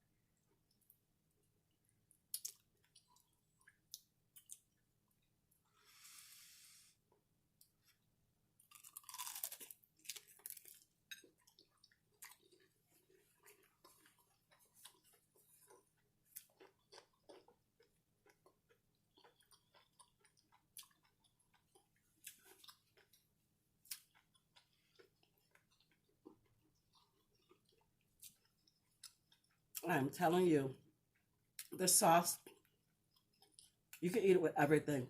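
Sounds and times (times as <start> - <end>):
person chewing crunchy food: 2.3 - 5.2, 7.1 - 29.8, 32.4 - 34.0.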